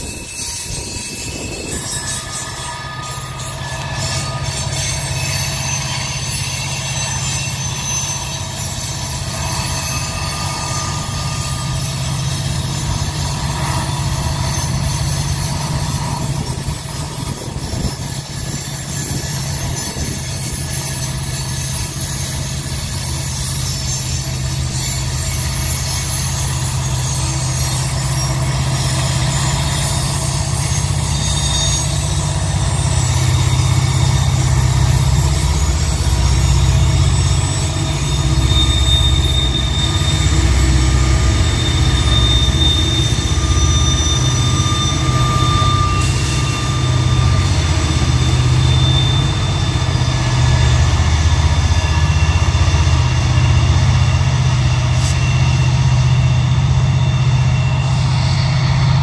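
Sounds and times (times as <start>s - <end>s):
diesel locomotive engines droning: 0.0s - 59.0s
wheels squealing: 0.0s - 59.0s.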